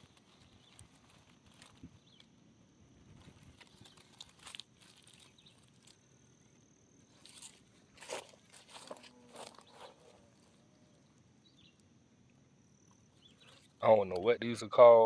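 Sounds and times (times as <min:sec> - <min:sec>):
footsteps on leaf litter: 0:03.2 - 0:06.0, 0:07.1 - 0:10.2.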